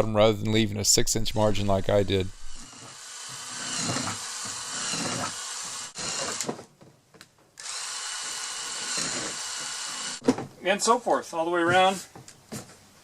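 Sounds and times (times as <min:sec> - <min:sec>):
power drill drilling plastic: 0:02.4 - 0:06.6, 0:07.6 - 0:10.2.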